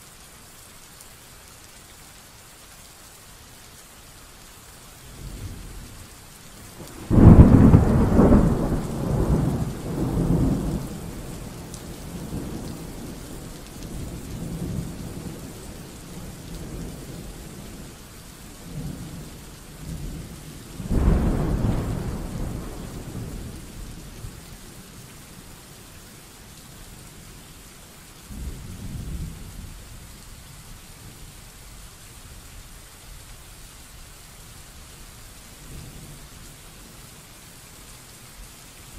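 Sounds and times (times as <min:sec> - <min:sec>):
steady rain: 0:00.0 - 0:38.9
loud thunderclap: 0:07.0 - 0:10.9, 0:20.8 - 0:23.5
thunder rumbling: 0:07.0 - 0:13.1, 0:20.8 - 0:24.0.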